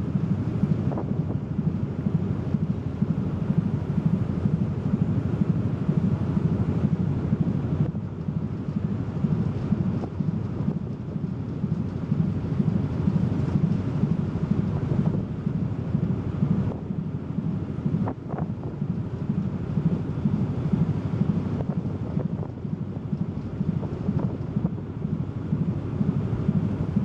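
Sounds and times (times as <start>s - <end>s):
ship engine low rumble: 0.0s - 27.0s
wind buffeting microphone: 0.0s - 27.0s.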